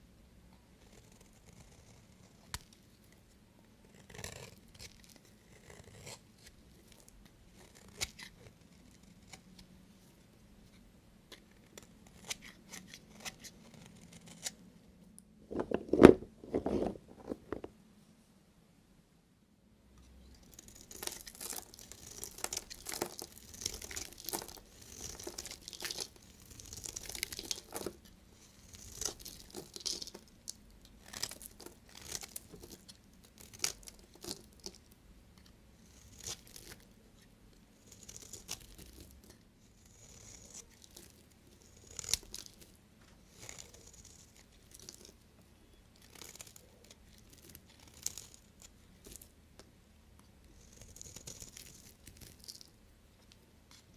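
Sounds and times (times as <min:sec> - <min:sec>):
knife cutting soap: 0:03.8 - 0:09.8, 0:10.7 - 0:14.6, 0:20.2 - 0:36.9, 0:37.8 - 0:49.3, 0:50.4 - 0:52.7.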